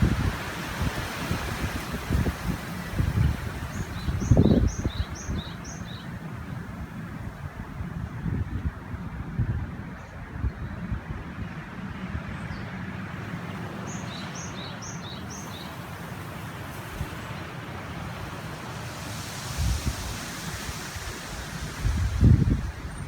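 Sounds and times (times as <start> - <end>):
river rushing: 0.0 - 7.2, 12.9 - 23.0
wind buffeting microphone: 0.0 - 12.7, 16.5 - 23.0
bird chirping: 3.7 - 6.2, 13.8 - 15.8.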